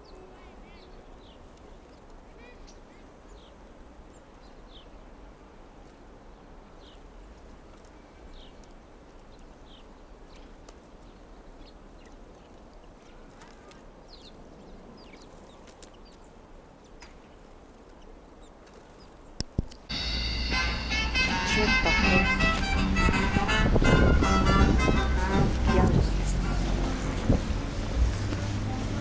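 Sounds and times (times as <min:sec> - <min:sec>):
small birds chirping: 0:08.1 - 0:20.5
low steady rumble: 0:19.9 - 0:29.0.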